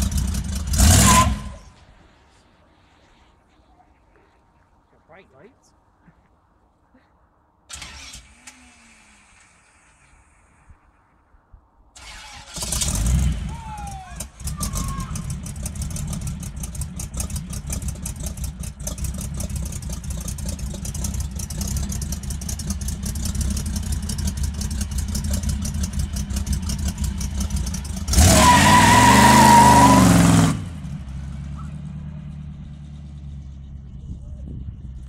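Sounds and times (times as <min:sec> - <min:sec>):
engine rumbling and revving: 0:00.0 - 0:01.8, 0:12.0 - 0:35.0.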